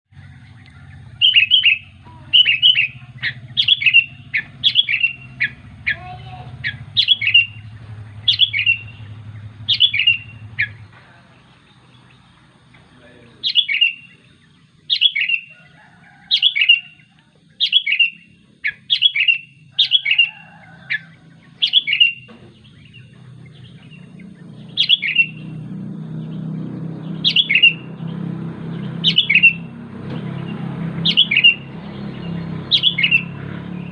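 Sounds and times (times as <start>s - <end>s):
low steady hum: 0.2s - 24.8s
bird calling sharply: 0.7s - 23.0s, 29.1s - 29.7s, 31.1s - 31.7s.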